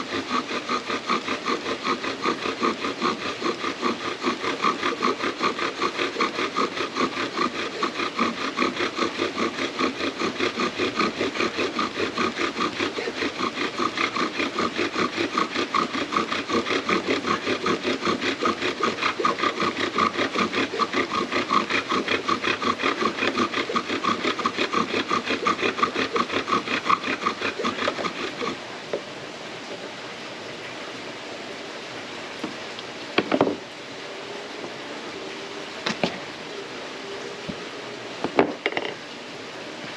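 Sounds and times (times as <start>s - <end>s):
bow drill spindle squeaking: 0.0s - 28.6s.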